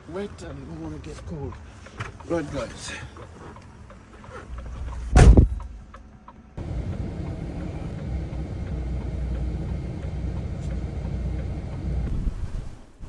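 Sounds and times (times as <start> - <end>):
loud bang: 5.1 - 5.8
diesel engine idling: 6.6 - 12.1.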